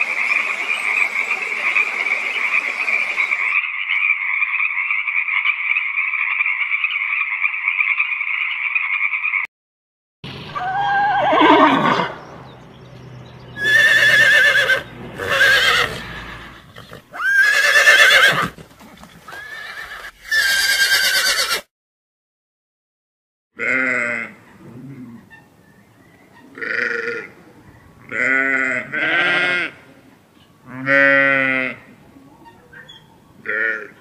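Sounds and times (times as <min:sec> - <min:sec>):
horses whinnying: 0:10.6 - 0:12.2, 0:13.6 - 0:21.7
sheep bleating: 0:23.6 - 0:24.4, 0:26.6 - 0:27.3, 0:28.1 - 0:29.8, 0:30.7 - 0:31.8.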